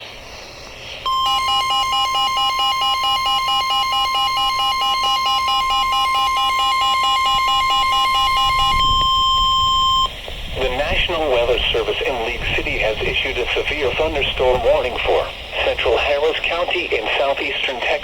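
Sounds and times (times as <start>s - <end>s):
loud steady high beep: 1.0s - 10.1s.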